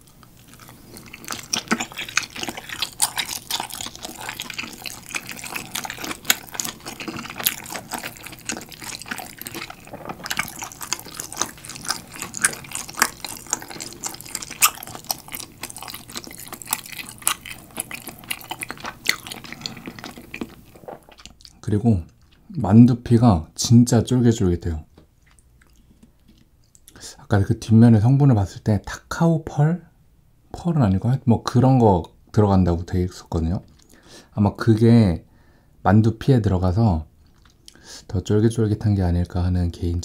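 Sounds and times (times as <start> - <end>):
close chewing with mouth clicks: 0.0 - 22.6, 25.2 - 27.0, 33.6 - 34.0, 37.2 - 37.8.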